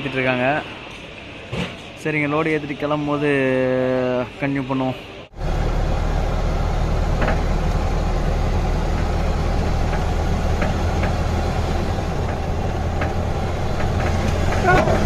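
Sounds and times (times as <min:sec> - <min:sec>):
diesel engine humming: 0:05.1 - 0:15.0.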